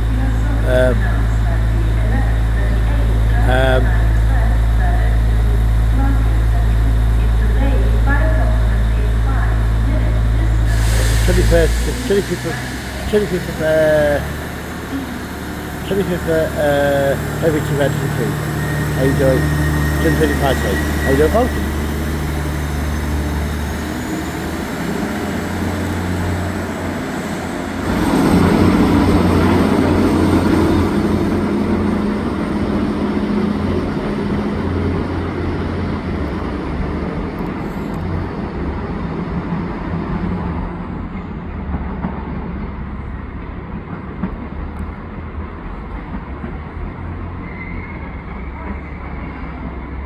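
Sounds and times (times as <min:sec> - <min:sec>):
steady low hum: 0:00.0 - 0:38.9
train moving: 0:00.0 - 0:50.0.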